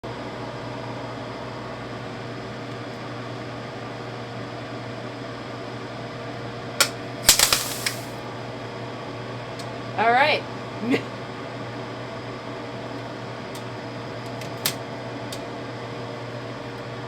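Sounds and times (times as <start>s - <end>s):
electrical hum with fan noise: 0.0s - 17.0s
sharp electrical snap: 6.8s - 8.2s
loud crackling pops: 7.3s - 8.2s.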